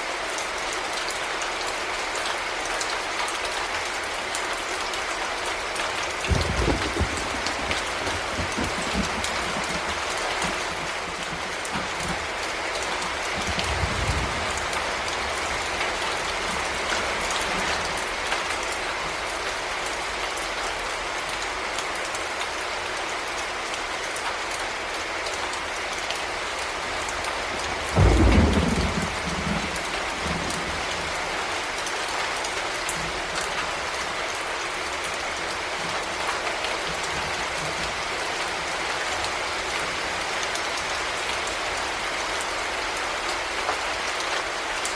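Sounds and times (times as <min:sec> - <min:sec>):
heavy rain falling: 0:00.0 - 0:44.9
loud thunderclap: 0:06.3 - 0:12.3, 0:27.9 - 0:30.8
low rumble of thunder: 0:06.3 - 0:18.2, 0:27.7 - 0:31.4.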